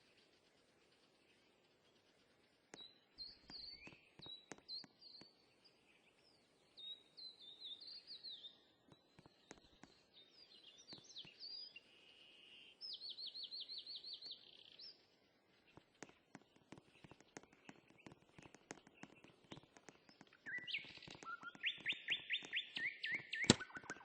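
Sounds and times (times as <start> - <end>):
songbird chirping and trilling: 0.0 - 24.0
light clicks: 15.7 - 24.0.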